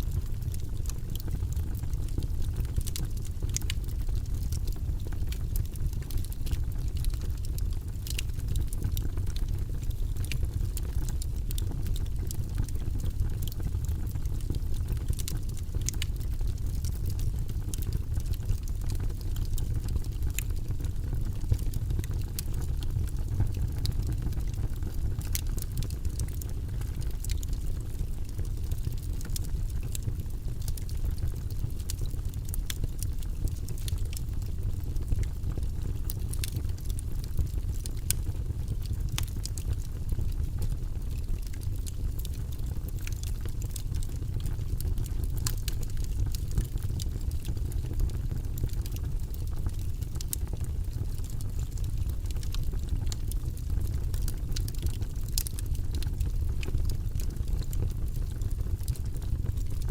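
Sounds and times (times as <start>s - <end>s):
wood fire rumbling: 0.0s - 59.9s
logs crackling and popping: 0.1s - 59.9s.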